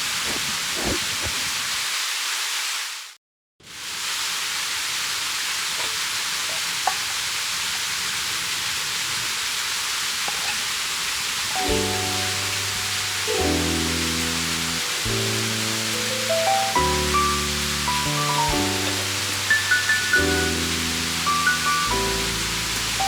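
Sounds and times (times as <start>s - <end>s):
mountain stream rushing: 11.0s - 23.0s.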